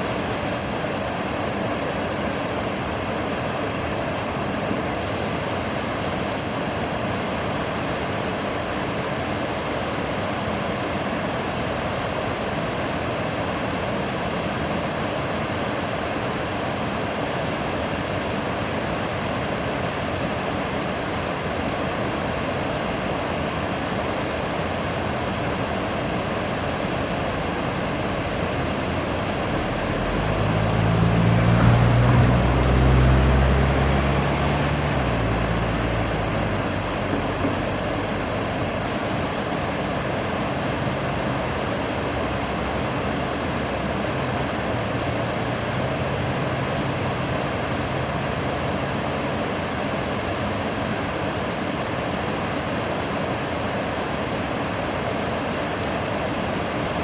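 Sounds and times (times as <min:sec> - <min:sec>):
river water rushing: 0:00.0 - 0:57.0
low engine hum: 0:23.9 - 0:57.0.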